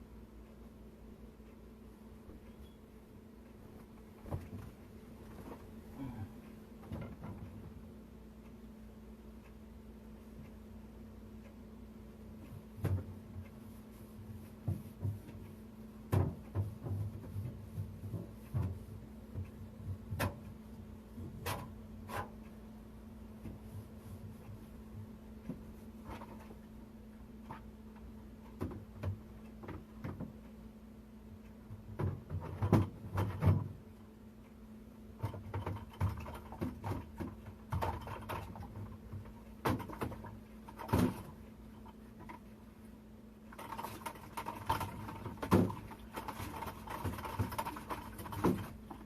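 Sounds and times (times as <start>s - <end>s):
steady low hum: 0.0s - 49.0s
knocks and clatter of handling: 16.1s - 20.5s, 31.7s - 33.8s, 35.2s - 42.5s, 43.5s - 49.0s.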